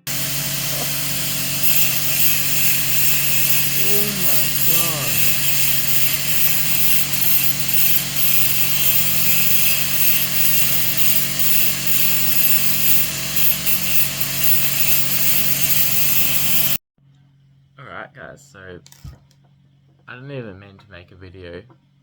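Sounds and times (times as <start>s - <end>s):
rock saw grinding whir: 0.0s - 16.8s.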